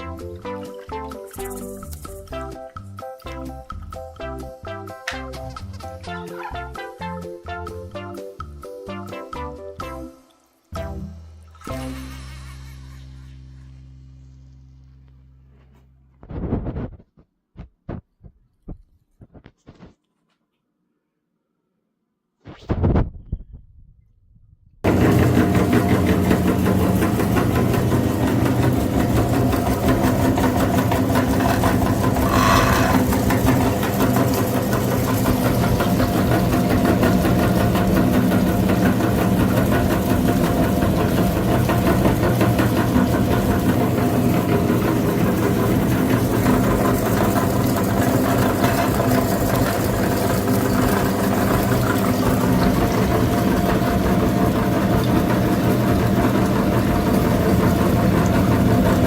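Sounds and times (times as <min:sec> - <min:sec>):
engine running steadily: 0:24.9 - 0:59.0.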